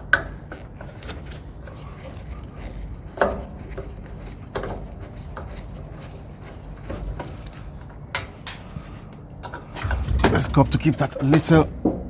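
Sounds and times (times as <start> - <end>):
low background rumble: 9.8 - 12.0.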